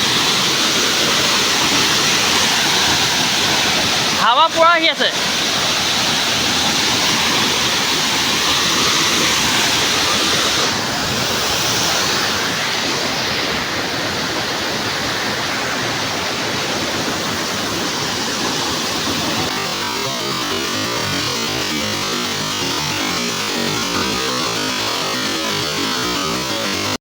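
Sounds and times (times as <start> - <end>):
waterfall roaring: 0.0 - 26.0.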